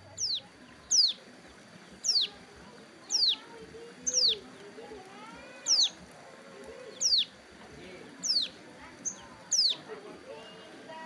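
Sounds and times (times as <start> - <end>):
wavering lower bird call: 0.0 - 1.3, 2.0 - 2.4, 3.0 - 4.5, 5.2 - 6.0, 6.8 - 7.4, 8.2 - 10.8
bird calling with high sweeping notes: 0.1 - 2.4, 3.0 - 4.5, 5.4 - 6.0, 6.8 - 7.4, 8.2 - 9.9.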